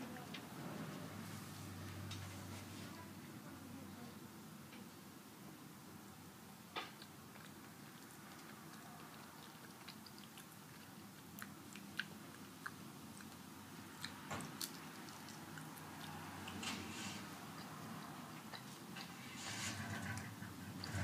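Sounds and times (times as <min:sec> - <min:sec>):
person chewing tortilla chips: 0:06.9 - 0:19.2.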